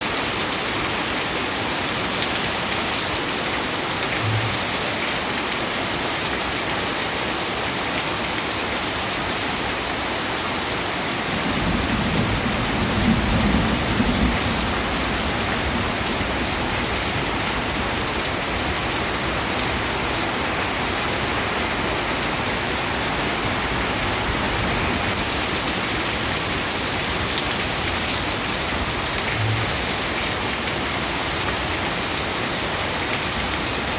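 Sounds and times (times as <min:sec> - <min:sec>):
heavy rain hissing: 0:02.5 - 0:06.1, 0:09.0 - 0:33.9
thunder rumbling: 0:11.3 - 0:18.0.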